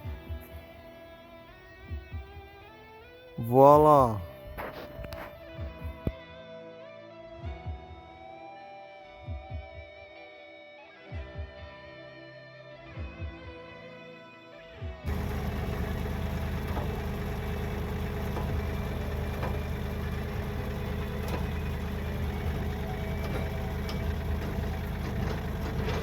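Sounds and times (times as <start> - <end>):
engine idling with light ticking: 15.1 - 26.0.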